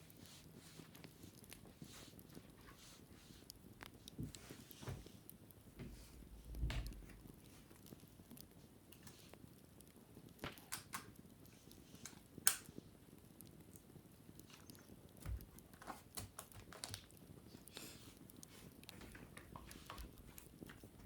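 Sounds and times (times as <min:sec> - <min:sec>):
soft brushing scratch: 0:00.0 - 0:05.2.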